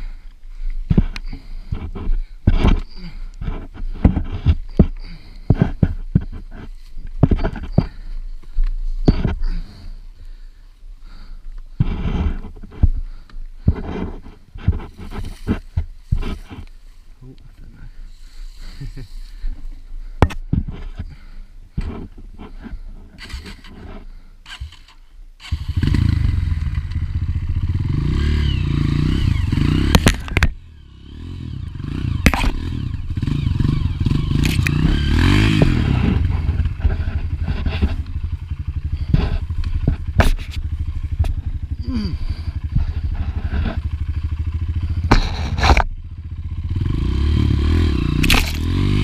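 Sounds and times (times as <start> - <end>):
dirt bike engine revving hard: 24.5 - 49.0
scattered clicks: 34.3 - 35.8.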